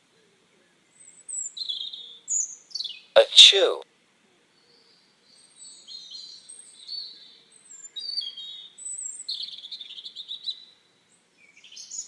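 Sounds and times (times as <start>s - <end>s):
small birds chirping: 0.9s - 3.1s.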